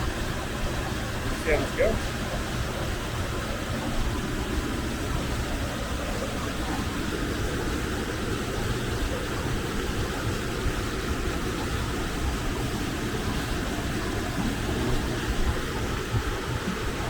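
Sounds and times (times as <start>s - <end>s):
waterfall rushing into pool: 0.0s - 17.0s.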